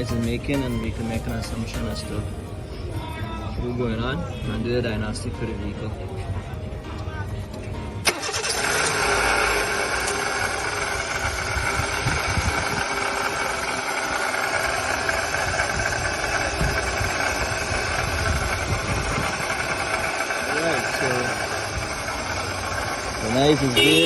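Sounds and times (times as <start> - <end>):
car engine idling: 7.2 - 24.0
engine knocking noise: 8.1 - 24.0.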